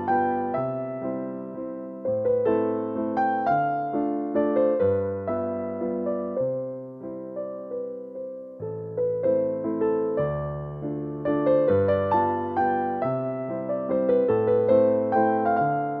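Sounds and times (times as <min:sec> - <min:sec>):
slow gentle piano music: 0:00.0 - 0:16.0.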